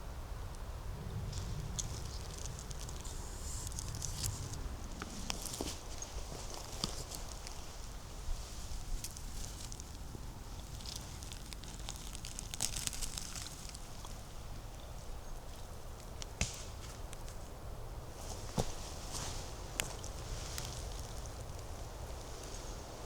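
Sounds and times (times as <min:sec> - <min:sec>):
sharp twig crack: 0:16.2 - 0:17.3.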